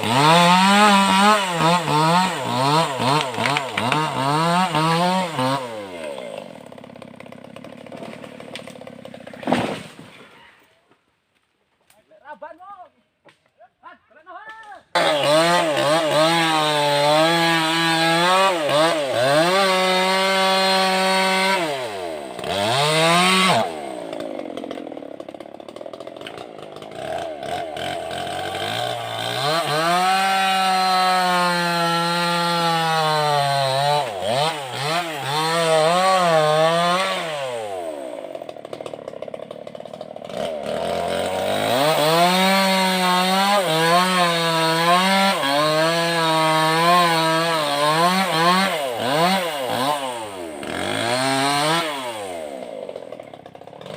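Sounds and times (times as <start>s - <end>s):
chainsaw cutting wood: 0.0s - 10.6s, 14.5s - 53.9s.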